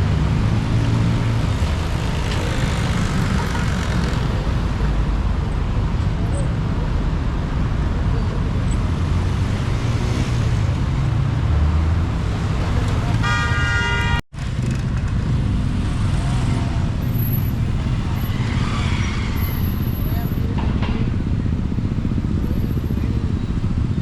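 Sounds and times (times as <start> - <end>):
road traffic: 0.0 - 24.0
vehicle horn: 13.2 - 14.2.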